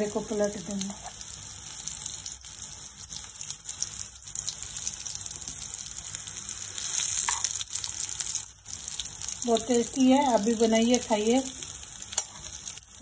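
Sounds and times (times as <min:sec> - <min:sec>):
food sizzling in ghee: 0:00.0 - 0:13.0.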